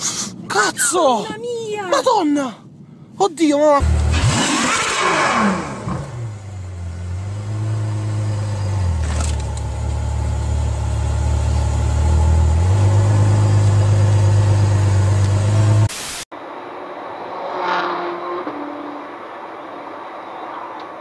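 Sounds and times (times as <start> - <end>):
car engine running: 3.8 - 15.9.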